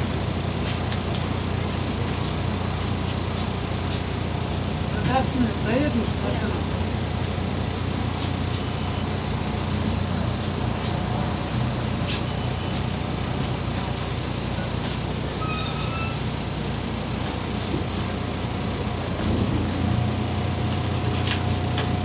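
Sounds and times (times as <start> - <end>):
bus diesel engine hum: 0.0 - 22.0
road noise: 0.0 - 22.0
short high squeal: 15.0 - 17.8.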